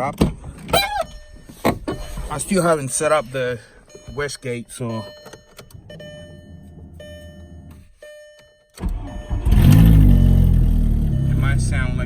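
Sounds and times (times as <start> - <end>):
car engine starting and revving: 8.8 - 12.0.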